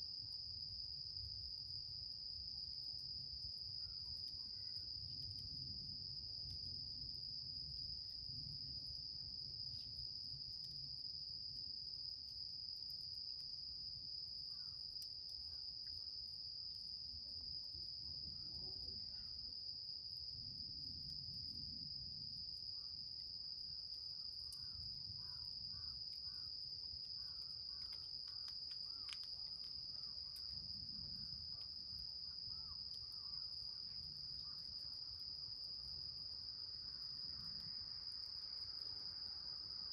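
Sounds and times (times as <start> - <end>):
crickets trilling: 0.2 - 39.9
faint crackling ticks: 14.5 - 16.0, 23.8 - 36.2.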